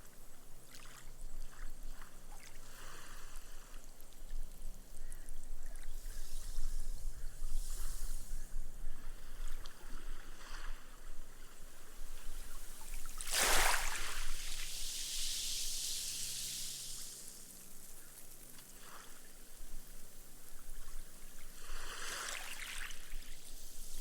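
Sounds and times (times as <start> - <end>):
small wave splashing on sand: 9.2 - 24.0
foam fizzing into sand: 12.2 - 24.0.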